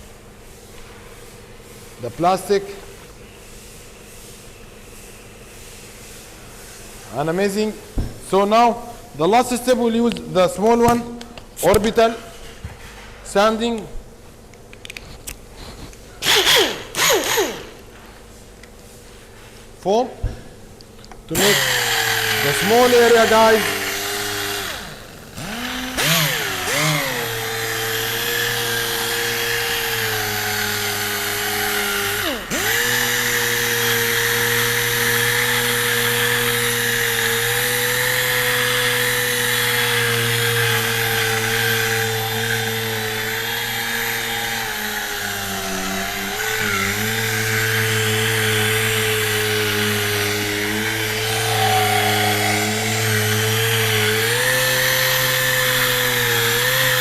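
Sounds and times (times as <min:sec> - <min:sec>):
orbital sander whining: 0:21.3 - 0:57.0.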